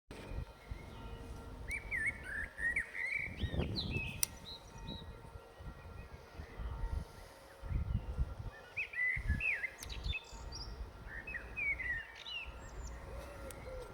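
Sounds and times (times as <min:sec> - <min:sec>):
songbird whistled chirps: 0:01.7 - 0:05.0, 0:08.6 - 0:13.6.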